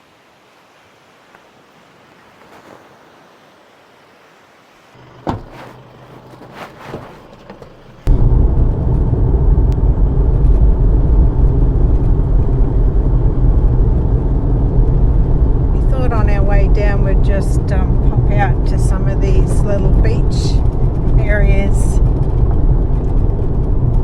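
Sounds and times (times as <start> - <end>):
car rumbling on road: 5.0 - 24.0.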